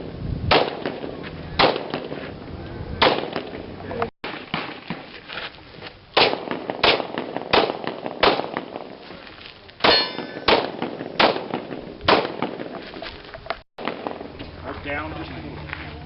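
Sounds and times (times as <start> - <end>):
pistol shots: 0.5 - 2.1, 3.0 - 3.5, 6.2 - 8.9, 9.8 - 12.8, 13.8 - 14.3
steel target ringing: 9.8 - 11.3.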